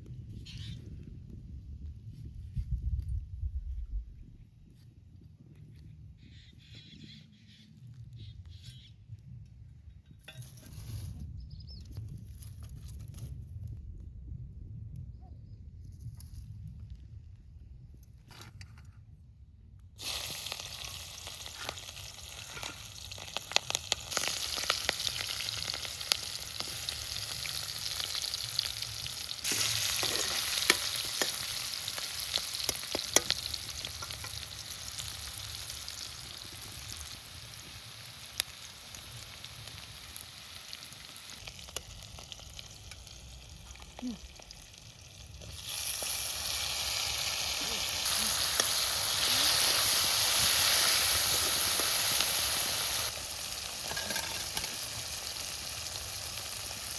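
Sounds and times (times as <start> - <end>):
food sizzling in a pan: 20.0 - 56.9.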